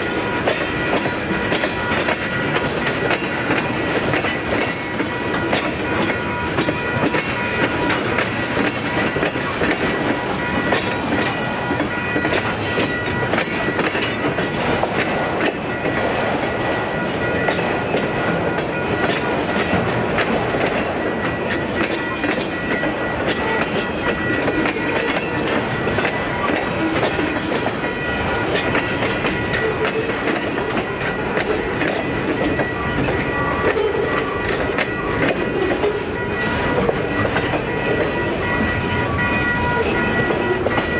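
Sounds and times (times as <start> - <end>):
railway cars rumbling past: 0.0 - 40.9
wheels clicking over rail joints: 0.0 - 40.9.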